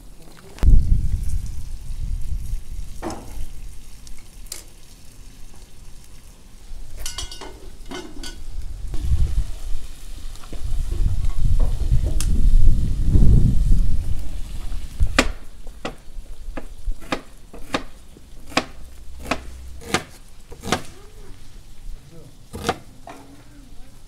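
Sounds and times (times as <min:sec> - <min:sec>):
food sizzling in cauldron: 0:00.0 - 0:24.0
utensil scraping and clinking: 0:07.0 - 0:08.5
low rumble: 0:08.5 - 0:15.1.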